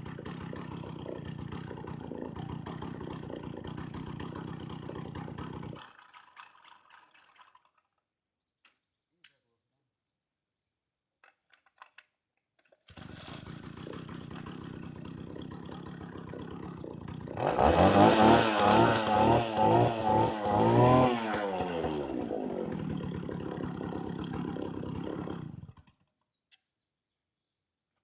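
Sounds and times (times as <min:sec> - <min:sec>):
chainsaw engine idling and revving: 0:00.0 - 0:07.6, 0:12.9 - 0:26.0.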